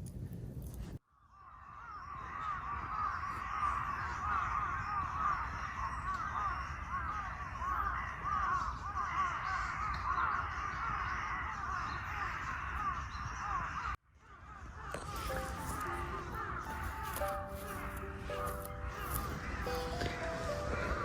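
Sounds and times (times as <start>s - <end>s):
flock of birds calling: 1.6s - 21.0s
soft music: 15.1s - 21.0s.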